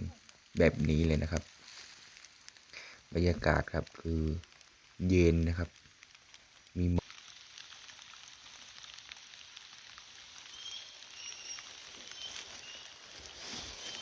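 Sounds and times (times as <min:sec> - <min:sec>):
steady rain falling: 0:00.0 - 0:14.0
faint high chirps: 0:10.3 - 0:14.0.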